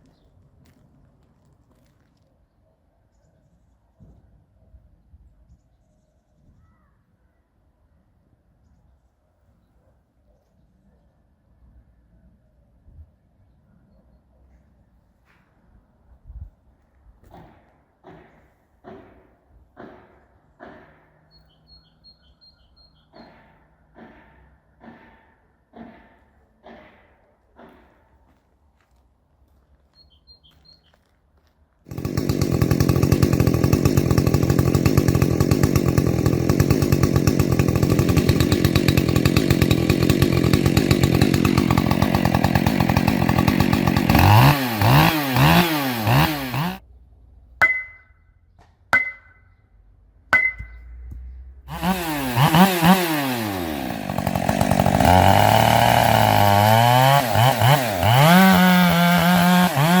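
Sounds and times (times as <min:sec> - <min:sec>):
chainsaw running at high revs: 0:31.9 - 0:46.8, 0:51.7 - 1:00.0.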